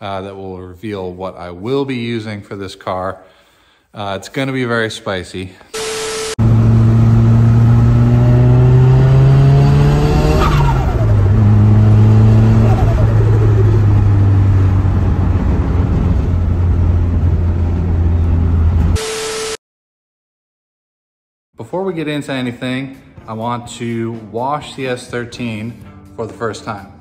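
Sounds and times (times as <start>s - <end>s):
car engine pulling hard: 5.8s - 18.9s.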